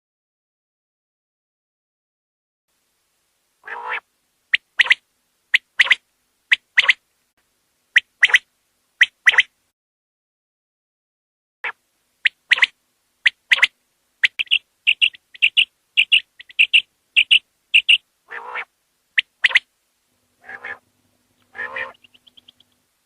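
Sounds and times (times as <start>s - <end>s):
low rasping calls: 3.6s - 4.0s, 13.3s - 19.6s, 20.4s - 22.8s
quail calling short liquid notes: 3.6s - 5.0s, 11.6s - 19.6s, 20.4s - 20.8s, 21.5s - 22.7s
faint trill of high ticks: 21.1s - 22.9s.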